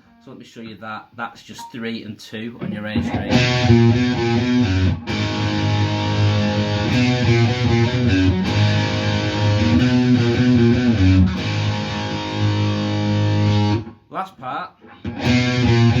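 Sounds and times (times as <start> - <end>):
electric guitar rock riff: 2.6 - 14.0, 14.8 - 16.0.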